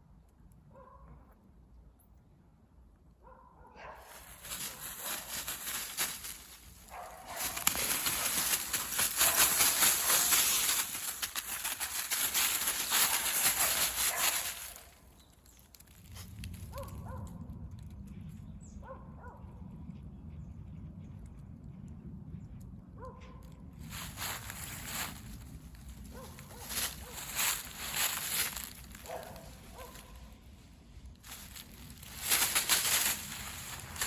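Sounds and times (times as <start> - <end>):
footsteps crunching dry leaves: 4.0 - 16.5, 23.8 - 30.4, 31.2 - 34.0.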